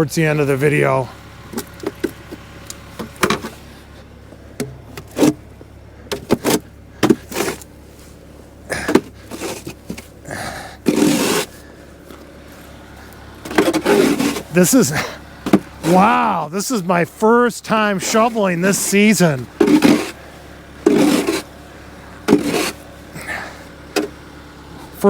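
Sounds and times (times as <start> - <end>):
snow shovel scraping snow: 5.0 - 5.4, 6.1 - 24.2.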